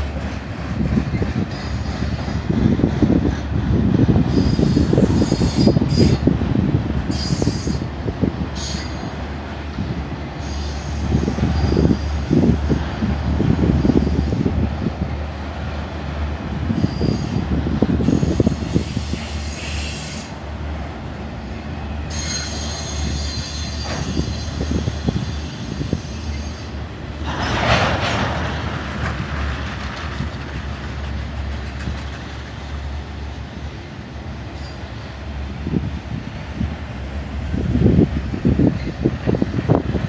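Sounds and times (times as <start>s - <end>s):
freight train wheels rumbling: 0.0s - 40.0s
high wheel squeal: 4.3s - 6.3s, 7.1s - 7.9s, 8.6s - 9.1s, 10.4s - 12.2s, 16.7s - 17.4s, 18.0s - 20.4s, 22.1s - 26.8s, 34.5s - 35.1s
wheel screech: 22.1s - 26.7s.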